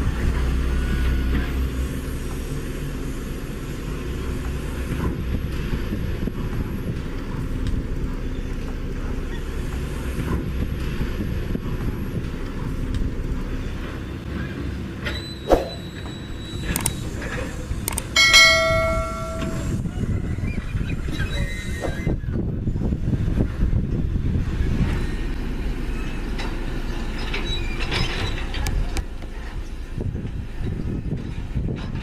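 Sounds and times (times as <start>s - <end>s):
low mechanical rumble: 0.0s - 32.0s
sharp ringing ding: 18.2s - 19.8s.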